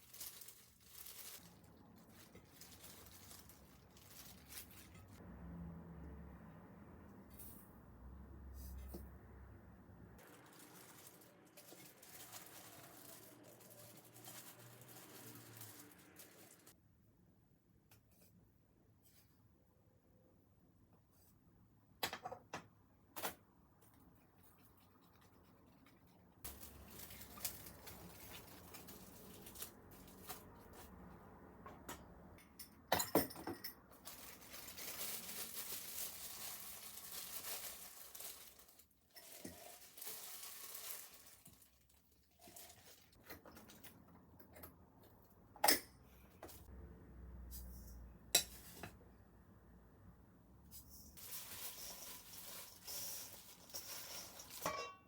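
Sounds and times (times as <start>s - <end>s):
rustling and scraping: 34.0s - 44.0s, 50.7s - 54.9s
dishes clinking: 54.6s - 55.0s.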